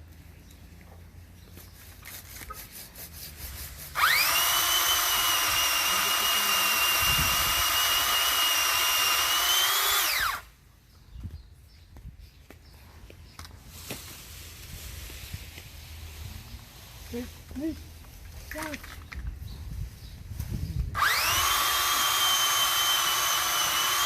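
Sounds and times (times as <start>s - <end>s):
pole saw motor whine: 4.0s - 10.5s, 21.0s - 24.0s.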